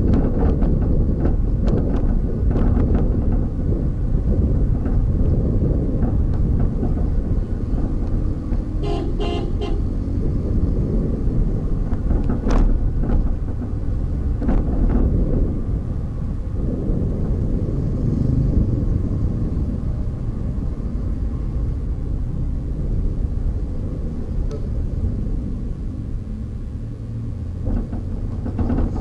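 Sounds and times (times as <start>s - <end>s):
traffic rumble: 0.0s - 29.0s
vehicle horn tooting: 8.8s - 9.9s.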